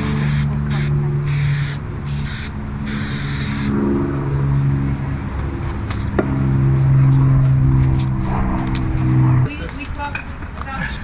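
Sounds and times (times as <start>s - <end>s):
short hissing sprays: 0.1s - 3.7s.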